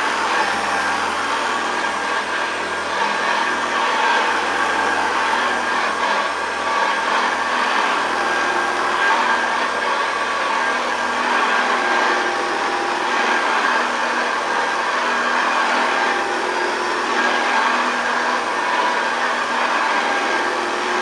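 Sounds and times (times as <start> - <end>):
upright vacuum cleaner running: 0.0 - 21.0.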